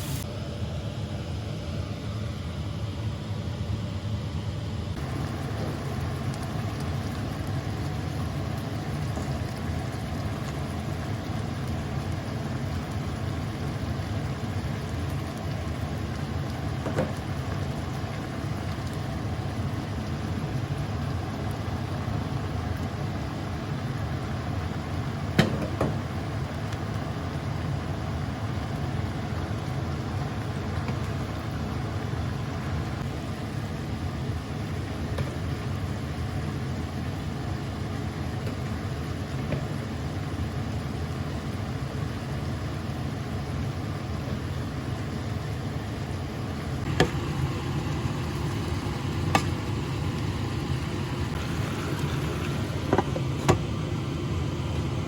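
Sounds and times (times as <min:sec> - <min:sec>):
vehicle running rumble: 0:04.9 - 0:22.9, 0:46.2 - 0:55.0.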